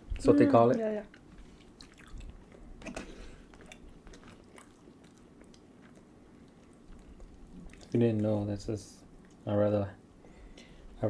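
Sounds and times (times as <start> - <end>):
person chewing food: 1.1 - 8.3, 9.0 - 9.5.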